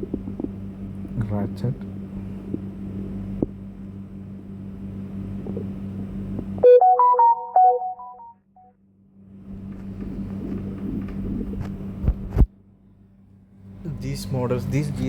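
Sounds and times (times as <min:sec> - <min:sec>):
background hum: 0:00.0 - 0:06.8, 0:08.9 - 0:15.0
electronic jingle: 0:06.6 - 0:08.3.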